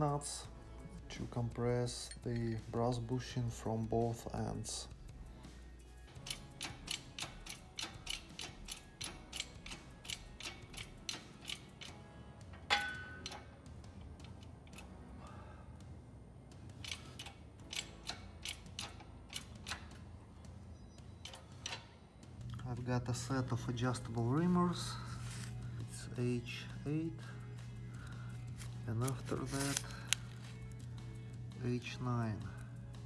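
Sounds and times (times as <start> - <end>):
ratchet wrench clicking: 6.2 - 12.0, 12.6 - 13.5, 16.8 - 20.0, 21.2 - 21.9
ringing metal clink: 12.6 - 13.5.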